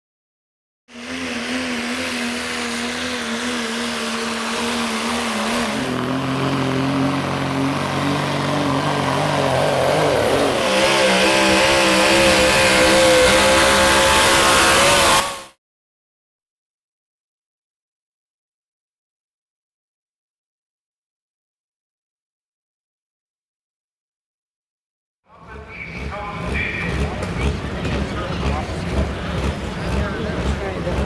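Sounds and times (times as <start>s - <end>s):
truck engines revving high: 0.9s - 15.6s, 25.5s - 31.0s.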